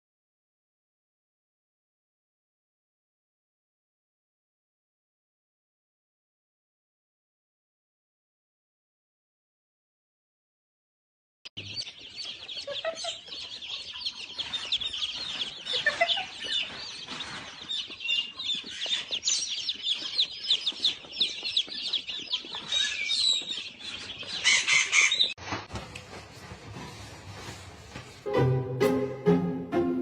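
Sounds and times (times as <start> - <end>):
many birds chirping: 11.6 - 25.4.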